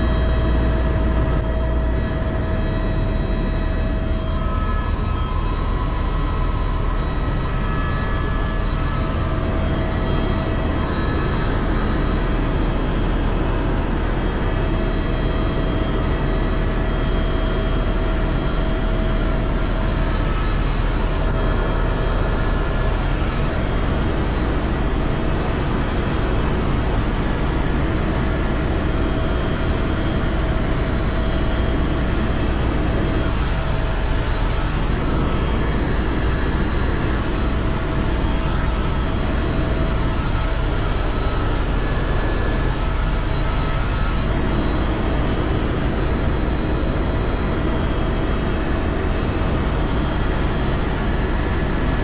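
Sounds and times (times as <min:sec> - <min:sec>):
faint steady whine: 0:00.0 - 0:52.0
helicopter engine and rotor drone: 0:00.0 - 0:52.0.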